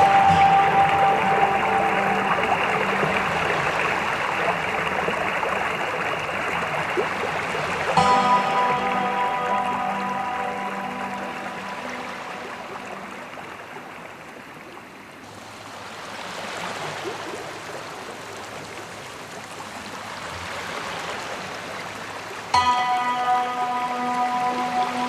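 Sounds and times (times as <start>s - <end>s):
background music: 0.0s - 6.0s, 8.0s - 13.6s, 22.6s - 25.0s
high water hiss: 0.0s - 13.9s
river water flowing: 0.0s - 25.0s.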